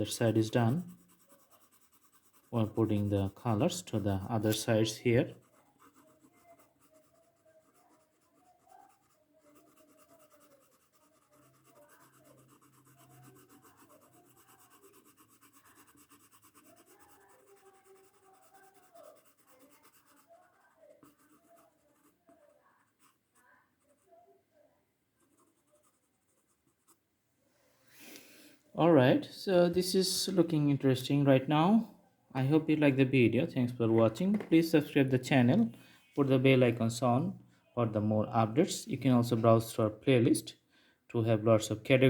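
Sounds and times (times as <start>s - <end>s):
colouring tool scratching paper: 0.0s - 24.3s, 25.2s - 27.0s.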